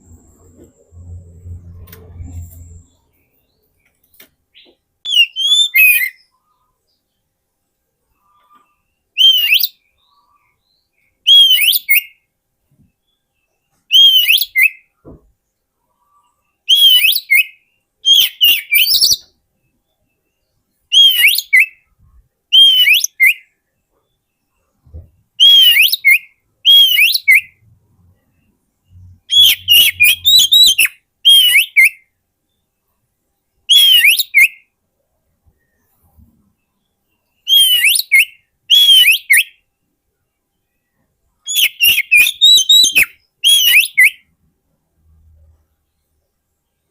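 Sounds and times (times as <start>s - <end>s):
bird singing whistled phrases: 5.1s - 6.3s, 9.2s - 10.4s, 11.2s - 12.2s, 13.9s - 14.9s, 16.7s - 19.4s, 20.9s - 21.9s, 22.5s - 23.5s, 25.4s - 27.6s, 29.0s - 32.0s, 33.7s - 34.7s, 37.4s - 39.6s, 41.5s - 44.3s.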